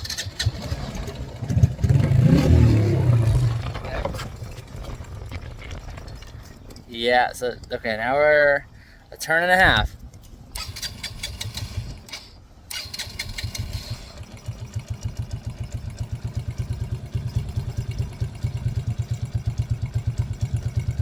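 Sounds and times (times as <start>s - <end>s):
engine idling: 10.0s - 21.0s
electric starter whine: 10.5s - 15.7s.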